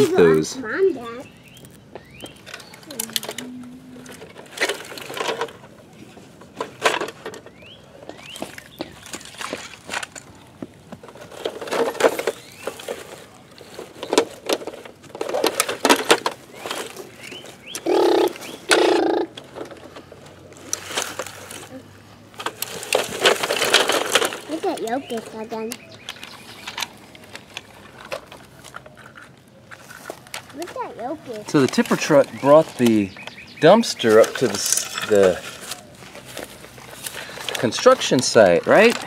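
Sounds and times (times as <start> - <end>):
toy trucks scraping through dirt: 11.1 - 39.0.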